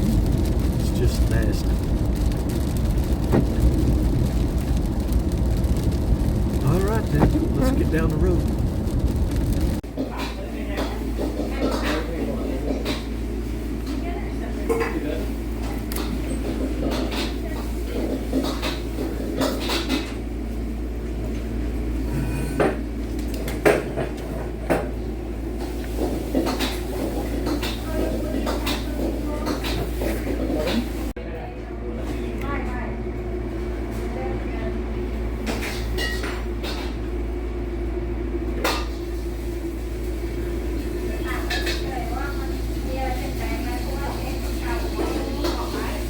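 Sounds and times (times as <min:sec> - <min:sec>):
road drone inside vehicle: 0:00.0 - 0:09.8
sharp clicks and knocks: 0:03.0 - 0:04.9.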